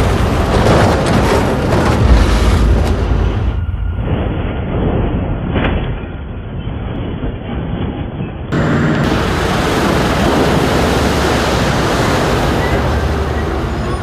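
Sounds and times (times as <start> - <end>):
heavy vehicle engine rumbling: 0.0 - 14.0.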